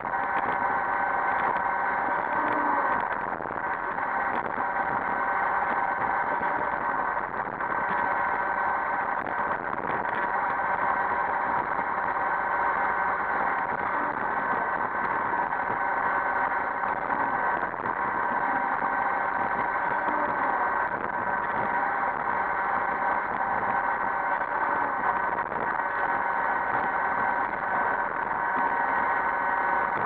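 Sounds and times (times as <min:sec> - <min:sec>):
robot vacuum motor whine: 0:00.0 - 0:30.0.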